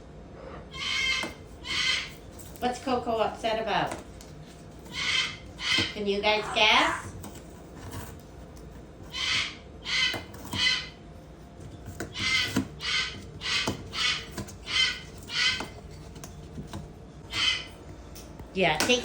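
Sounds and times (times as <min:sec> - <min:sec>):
cockatoo harsh calls: 0:00.4 - 0:02.3, 0:04.8 - 0:07.2, 0:09.1 - 0:11.0, 0:12.0 - 0:15.8, 0:17.3 - 0:17.8.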